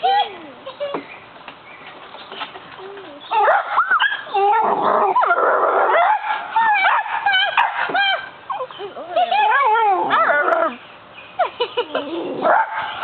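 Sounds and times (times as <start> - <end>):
dog whining and yipping: 3.0 - 10.8.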